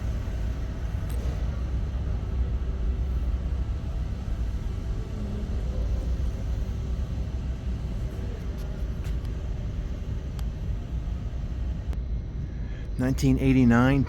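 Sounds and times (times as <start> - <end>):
low rumble of exhibition hall: 0.0 - 14.0
faint clicks: 8.4 - 10.6.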